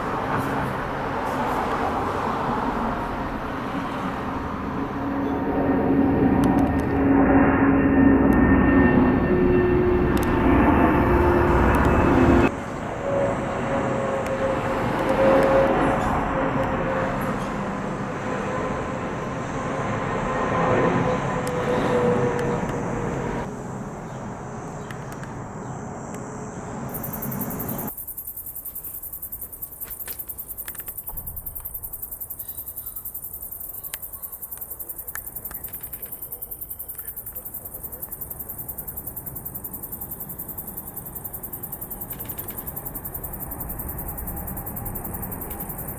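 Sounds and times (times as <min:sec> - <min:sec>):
insects chirping: 0:00.0 - 0:12.5, 0:22.7 - 0:45.9
jet engines roaring: 0:00.0 - 0:28.0
jet engine whine: 0:00.0 - 0:28.1, 0:34.1 - 0:45.9.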